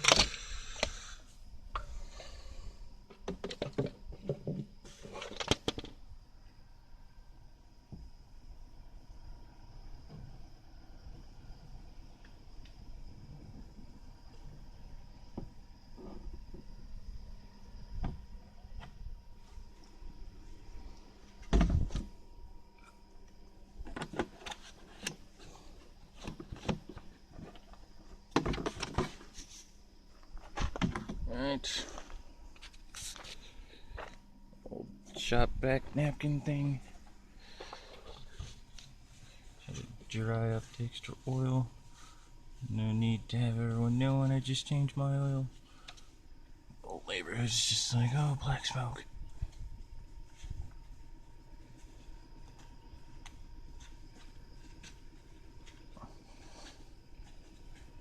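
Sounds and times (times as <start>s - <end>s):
objects knocking and clattering: 3.1s - 6.0s.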